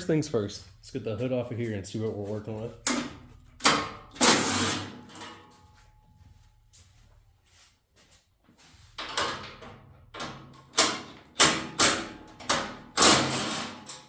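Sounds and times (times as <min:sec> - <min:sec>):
sheet metal clunks and rattles: 0:02.8 - 0:05.5, 0:09.0 - 0:14.0.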